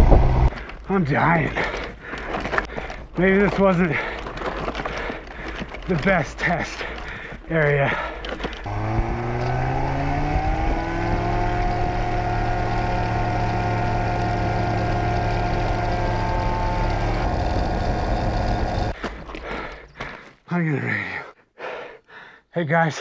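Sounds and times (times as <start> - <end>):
light aircraft engine and propeller: 8.7 - 19.0.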